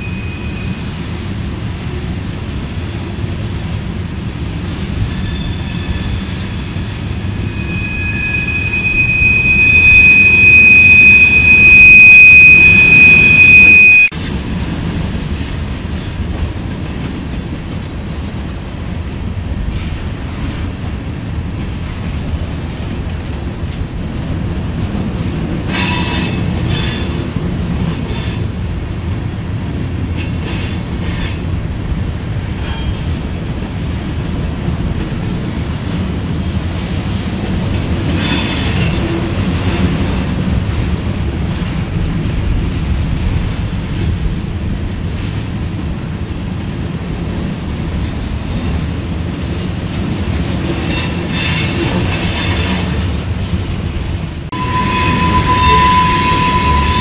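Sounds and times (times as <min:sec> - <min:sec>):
steel wheels rumbling on rail: 0:00.0 - 0:57.0
high wheel squeal: 0:05.0 - 0:14.1, 0:54.5 - 0:57.0.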